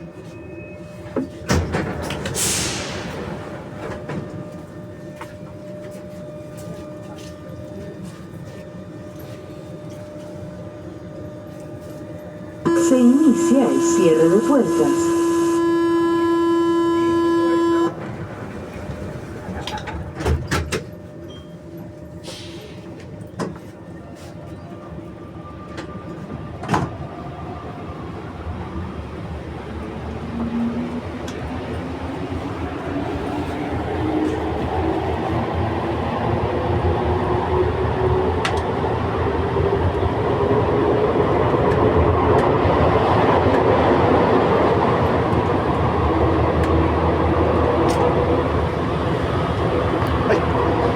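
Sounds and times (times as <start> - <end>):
train car equipment hum: 0.0 - 24.7, 41.4 - 50.9
steady whine: 12.7 - 18.0.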